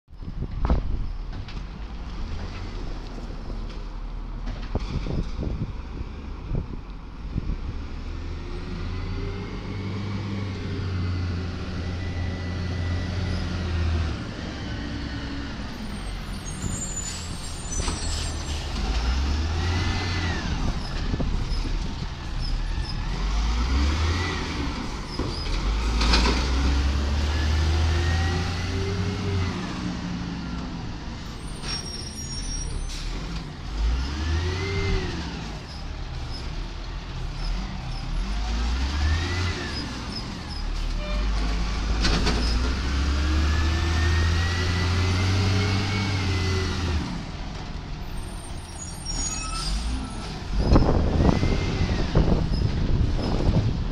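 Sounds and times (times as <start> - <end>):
garbage truck diesel engine revving: 18.6 - 31.0, 32.9 - 47.8.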